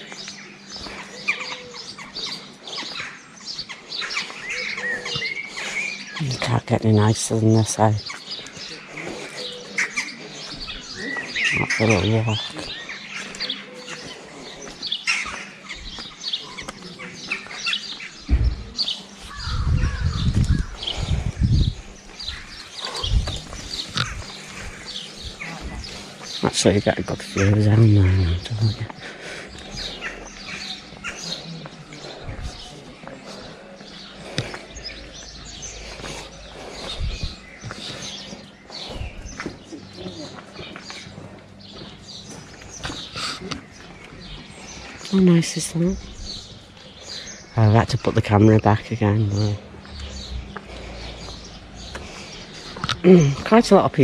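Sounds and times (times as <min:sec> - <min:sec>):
outdoor background noise: 0:00.0 - 0:54.0
small birds chirping: 0:00.0 - 0:54.0
dull low thuds: 0:18.2 - 0:26.0, 0:36.4 - 0:37.9.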